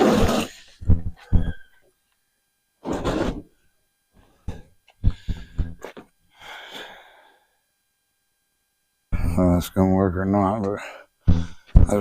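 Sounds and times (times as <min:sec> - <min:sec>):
man breathing heavily: 0:00.7 - 0:01.8, 0:04.5 - 0:07.6, 0:10.8 - 0:11.9.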